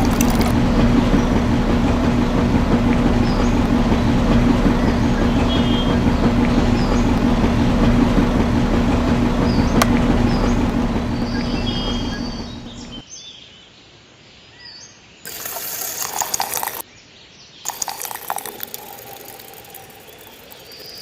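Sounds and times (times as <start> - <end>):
small motor humming: 0.0 - 13.0, 17.7 - 21.0
faint bird chirps: 9.4 - 13.7.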